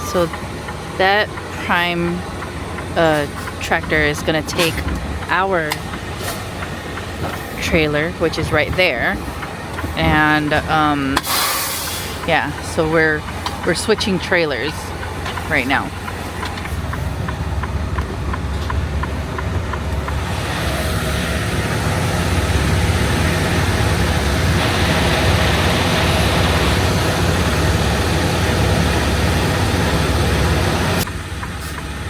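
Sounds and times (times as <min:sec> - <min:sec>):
light even ticking: 0:00.0 - 0:11.2, 0:12.0 - 0:20.3
diesel truck engine rumbling: 0:00.0 - 0:32.0.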